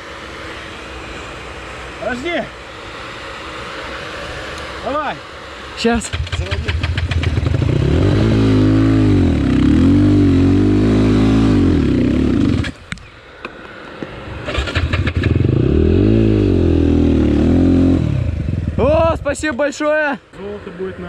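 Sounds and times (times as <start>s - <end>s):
motorcycle engine revving hard: 5.9s - 12.8s, 14.4s - 19.2s.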